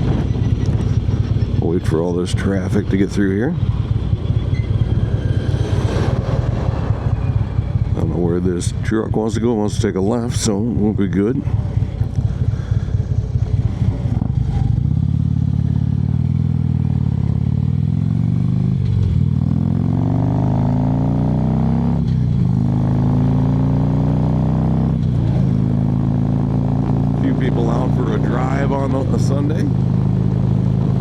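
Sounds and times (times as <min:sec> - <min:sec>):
motorcycle engine idling and accelerating: 0:00.0 - 0:31.0.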